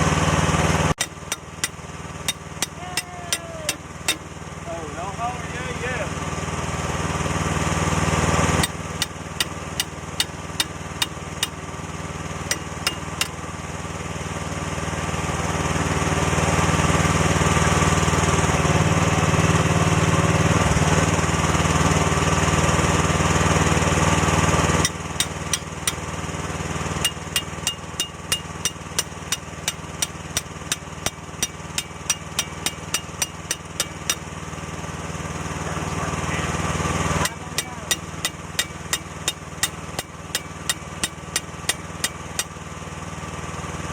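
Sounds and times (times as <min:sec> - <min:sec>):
small diesel engine revving: 0:14.2 - 0:27.0.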